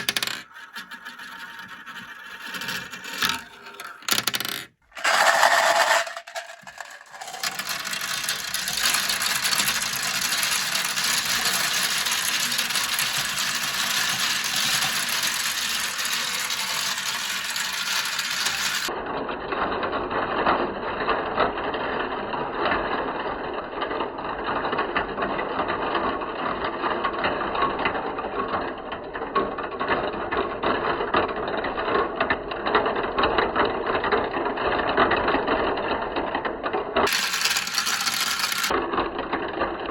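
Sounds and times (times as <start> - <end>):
marbles rattling down a track: 0.0 - 18.9, 37.0 - 38.8.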